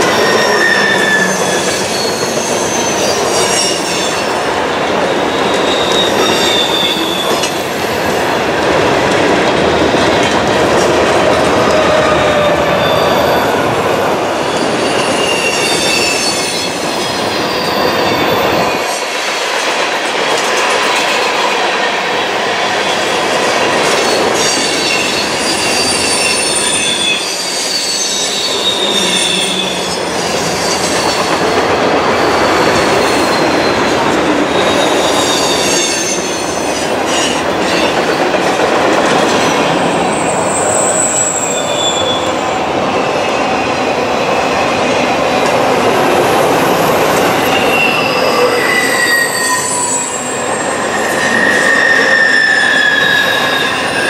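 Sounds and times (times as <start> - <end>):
high wheel squeals: 0.0 - 4.4, 5.0 - 8.0, 11.6 - 18.8, 24.2 - 33.9, 34.5 - 37.4, 39.7 - 42.6, 46.6 - 54.0
freight train rumbling past: 0.0 - 54.0.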